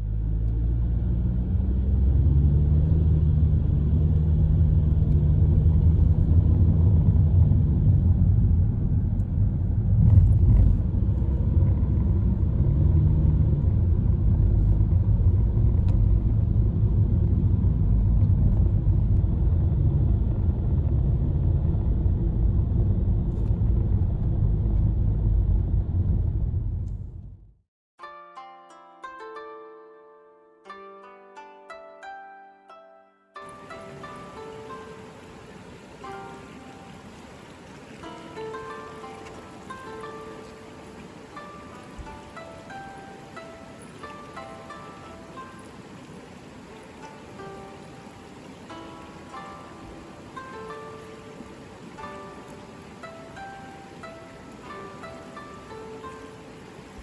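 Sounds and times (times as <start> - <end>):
river water rushing: 0.0 - 19.1, 33.4 - 57.0.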